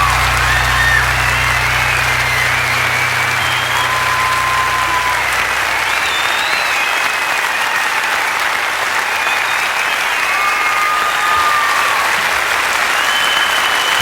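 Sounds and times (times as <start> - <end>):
high whistles: 0.0 - 7.9, 13.0 - 14.0
audience applauding: 0.0 - 14.0.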